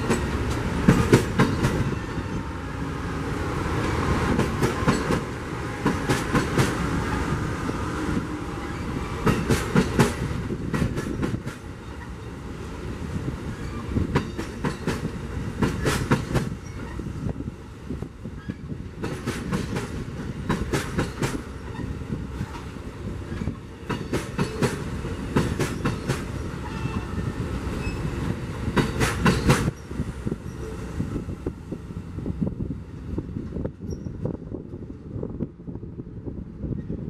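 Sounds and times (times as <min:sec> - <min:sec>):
train rumbling past: 0:00.0 - 0:37.0.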